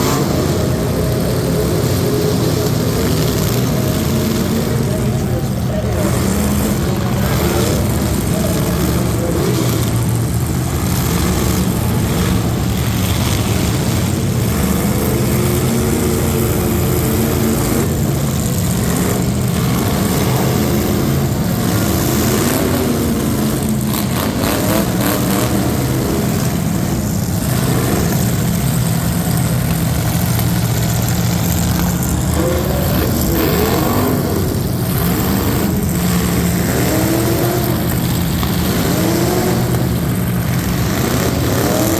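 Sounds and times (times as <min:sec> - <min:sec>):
truck engine revving: 0:00.0 - 0:41.9.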